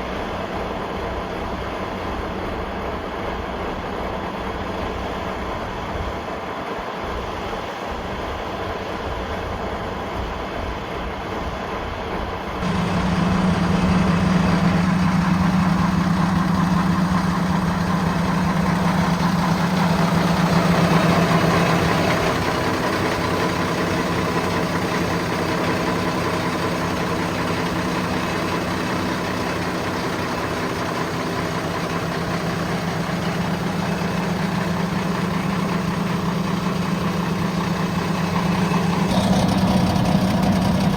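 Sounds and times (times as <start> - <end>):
diesel engine running: 10.2 - 40.9.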